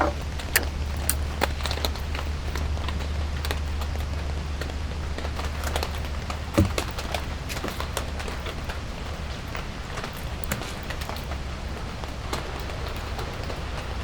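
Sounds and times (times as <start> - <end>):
raindrops ticking on a surface: 0.0 - 14.0
loud thump: 6.6 - 7.0.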